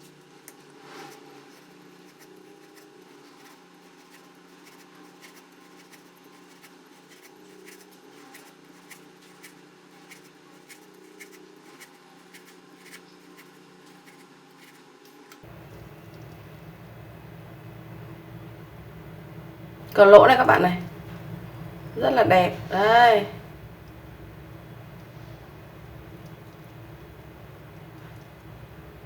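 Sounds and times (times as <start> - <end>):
steady low hum: 15.4 - 29.0.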